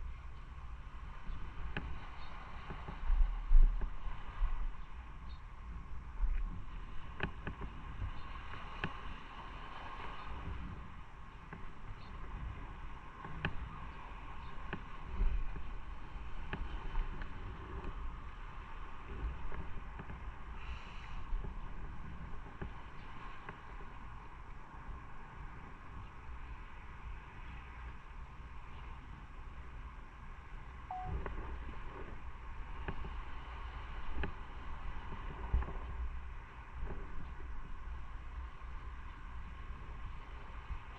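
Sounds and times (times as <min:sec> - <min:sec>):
wind on microphone: 0:00.0 - 0:40.9
faint ticks: 0:01.2 - 0:04.0, 0:06.2 - 0:09.1, 0:11.4 - 0:12.5, 0:13.2 - 0:15.8, 0:16.4 - 0:18.4, 0:19.0 - 0:24.6, 0:32.8 - 0:33.2, 0:34.1 - 0:36.0.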